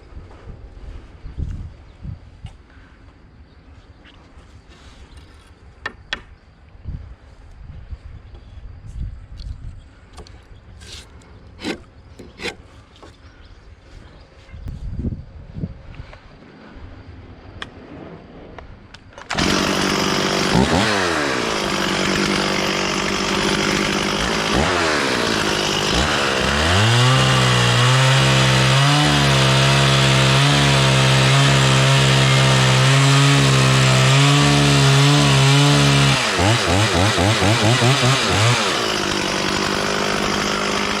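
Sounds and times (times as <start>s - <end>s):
chainsaw idling and revving: 19.3s - 41.0s.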